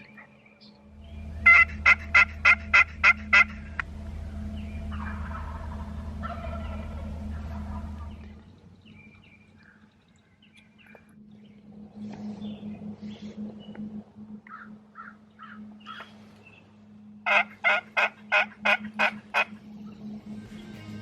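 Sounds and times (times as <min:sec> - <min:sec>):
small birds chirping: 0:00.0 - 0:21.0
turkey gobbling: 0:01.4 - 0:08.4, 0:14.4 - 0:16.1, 0:17.2 - 0:19.6.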